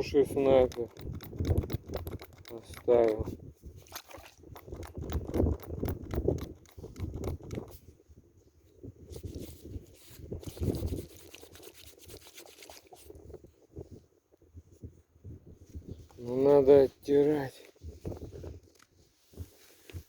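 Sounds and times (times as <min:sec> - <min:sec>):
metal badge rubbing and scraping: 0:00.4 - 0:03.3, 0:04.6 - 0:07.8, 0:09.1 - 0:13.1.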